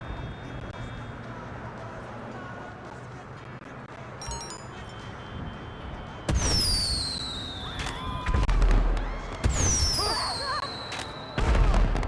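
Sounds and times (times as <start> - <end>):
falling firework whistle: 6.3 - 12.0
fireworks bangs: 6.3 - 12.0.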